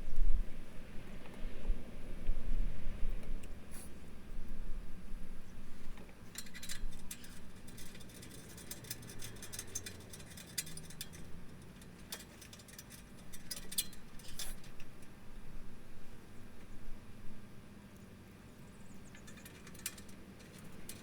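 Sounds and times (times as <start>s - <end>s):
metallic clicks of bolts and tools: 6.3s - 15.0s, 19.1s - 21.0s.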